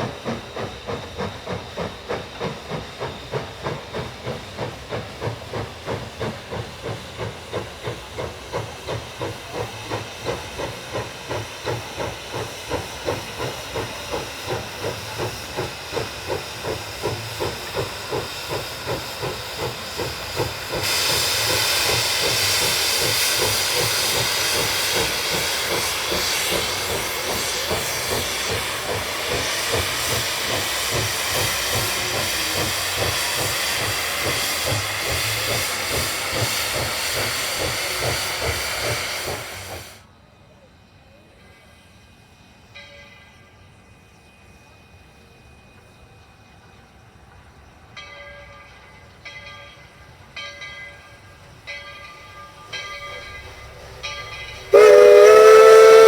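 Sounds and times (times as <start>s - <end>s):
hiss of escaping steam: 0.0s - 40.1s, 52.5s - 56.0s
steam locomotive chuffing: 0.0s - 56.0s.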